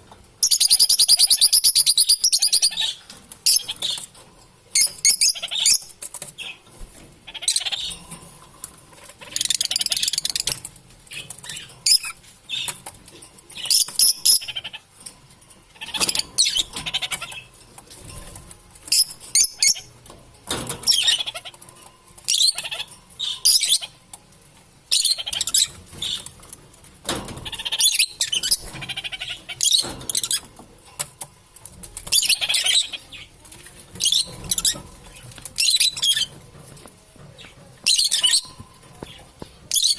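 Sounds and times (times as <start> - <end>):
lovebirds chirping: 4.7 - 6.6, 24.9 - 26.3, 32.0 - 36.4, 37.3 - 39.9.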